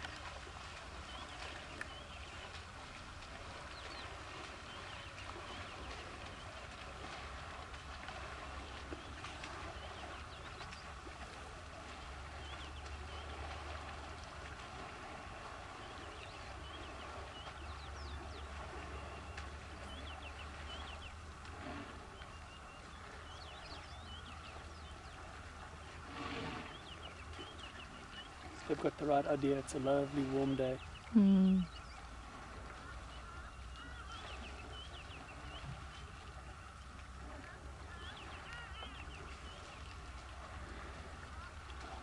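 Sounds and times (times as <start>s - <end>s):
small birds chirping: 0.2s - 6.7s, 8.5s - 11.1s, 12.3s - 13.6s, 15.8s - 21.2s, 22.2s - 25.4s, 26.6s - 32.1s, 32.8s - 36.7s, 37.8s - 40.0s.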